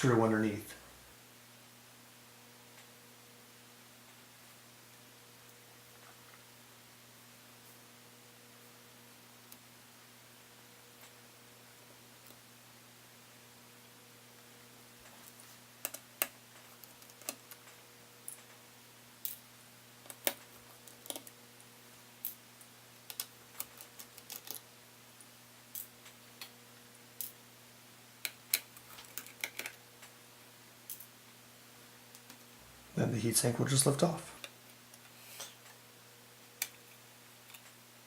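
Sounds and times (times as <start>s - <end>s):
faint steady hum: 0.0s - 38.0s
small parts tapping: 15.8s - 18.6s, 19.2s - 21.4s, 22.2s - 24.7s, 28.2s - 30.1s, 30.9s - 31.2s.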